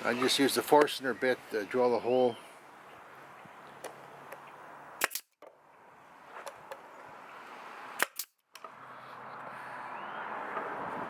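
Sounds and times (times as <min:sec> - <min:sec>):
nail gun firing: 0:05.0 - 0:05.4, 0:08.0 - 0:08.4.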